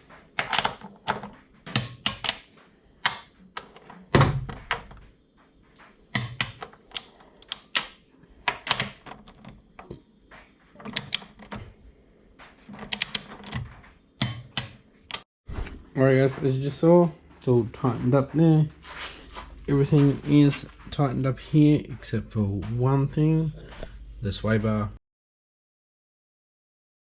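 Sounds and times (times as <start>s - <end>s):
metallic clicks of hand tools: 6.2s - 7.9s, 12.8s - 13.3s.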